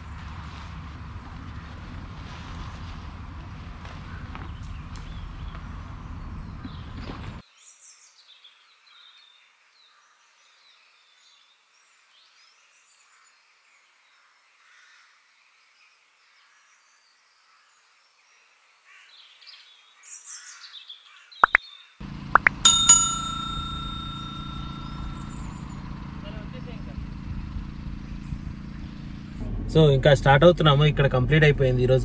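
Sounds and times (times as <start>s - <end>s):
faint birdsong: 4.0s - 29.4s.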